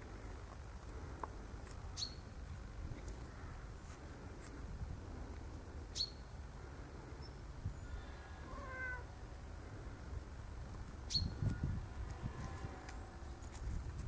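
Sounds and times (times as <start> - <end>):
cat meowing: 8.4 - 9.1
high chirps: 11.0 - 11.6.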